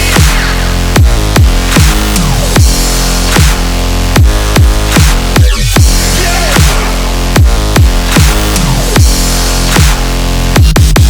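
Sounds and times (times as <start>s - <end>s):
deep kick drums: 0.0s - 11.0s
electronic dance music: 0.0s - 11.0s.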